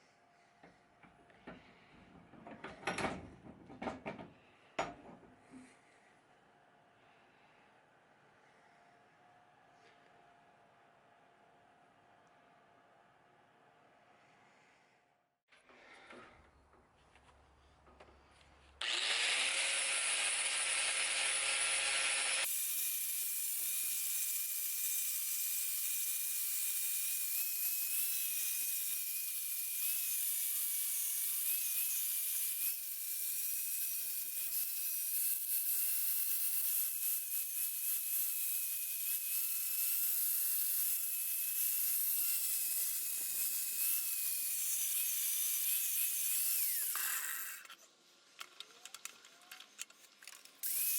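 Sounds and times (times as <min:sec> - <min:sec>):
power tool whining: 0:18.8 - 0:47.8, 0:50.6 - 0:50.9.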